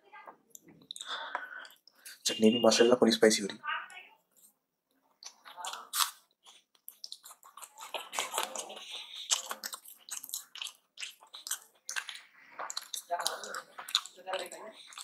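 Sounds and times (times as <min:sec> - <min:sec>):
wet mouth smacks and clicks: 0:05.2 - 0:14.2.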